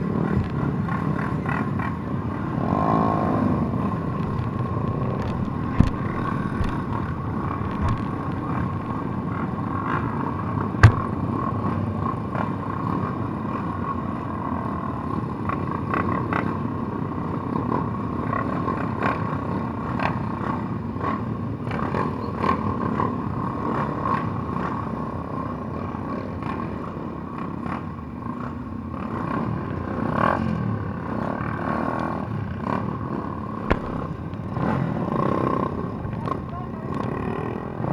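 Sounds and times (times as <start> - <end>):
motorcycle engine running: 2.2 - 11.2, 33.7 - 37.9
rattling clicks: 3.9 - 10.2
sharp knock: 4.2 - 9.3, 10.8 - 11.2, 33.7 - 34.7.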